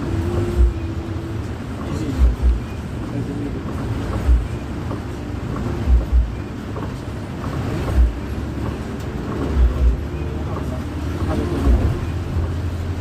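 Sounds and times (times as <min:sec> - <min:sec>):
bus engine and road noise: 0:00.0 - 0:13.0
dull low thumps: 0:00.1 - 0:02.8, 0:03.7 - 0:10.2.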